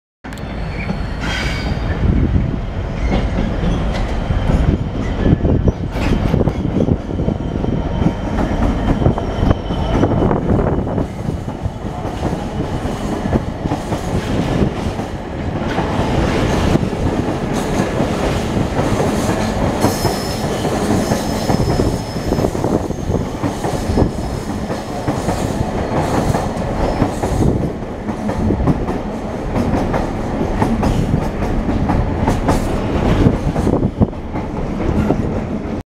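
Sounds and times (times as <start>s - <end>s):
freight train passing: 0.3s - 35.8s
high wheel squeals: 0.4s - 2.0s, 19.9s - 23.2s.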